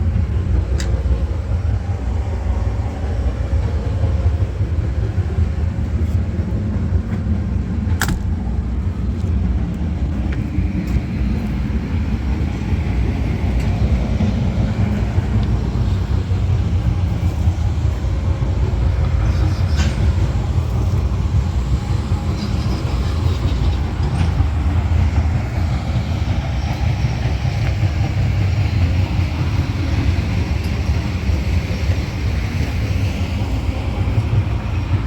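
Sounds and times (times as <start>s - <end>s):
diesel engine rumbling: 0.0s - 35.0s.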